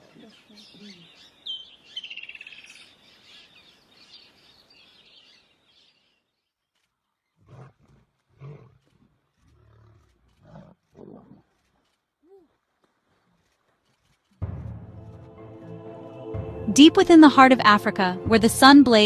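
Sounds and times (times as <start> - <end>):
birds chirping: 0.0 - 6.3
lion grunting calls: 7.4 - 8.8, 9.5 - 11.5.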